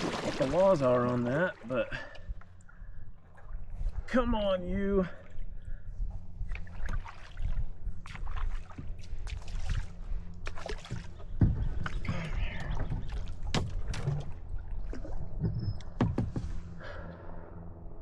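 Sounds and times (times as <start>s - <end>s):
paddle splashing water: 0.0s - 2.2s, 6.5s - 16.7s.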